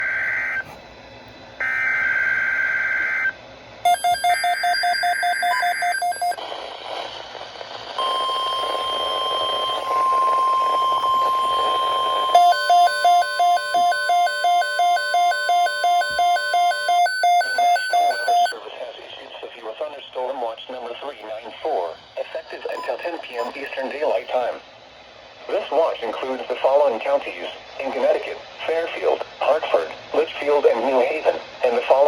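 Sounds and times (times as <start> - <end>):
steady warning alarm tone: 0.0 - 0.6, 1.6 - 6.4, 8.0 - 18.6
electronic alarm beeping: 1.6 - 6.4, 8.0 - 18.6.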